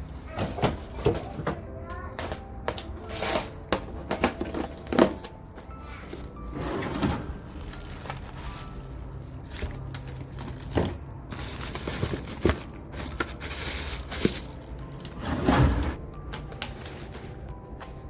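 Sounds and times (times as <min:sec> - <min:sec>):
packaging rustling and crinkling: 0:07.4 - 0:18.0.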